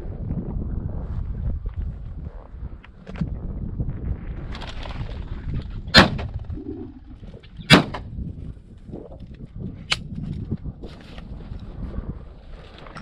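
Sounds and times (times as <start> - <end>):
wind rumbling on microphone: 0.0 - 13.0
shotgun shots: 5.9 - 6.3, 7.7 - 8.0.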